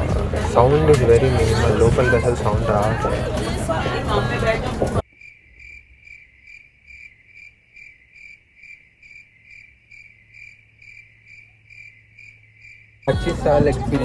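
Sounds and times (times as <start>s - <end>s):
cricket chirping: 5.0s - 13.1s.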